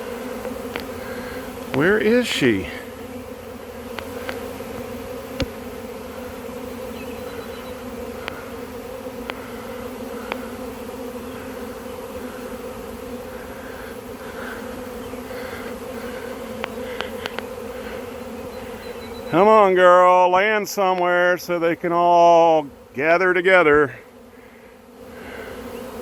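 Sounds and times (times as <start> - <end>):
bee swarm buzzing: 0.0 - 26.0.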